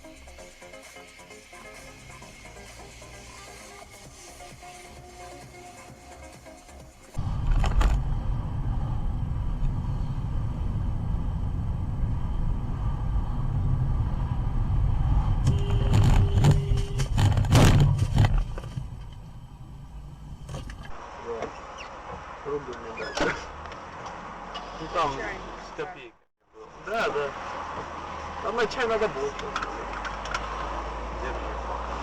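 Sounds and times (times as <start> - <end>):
car road and engine rumble: 0.0 - 32.0.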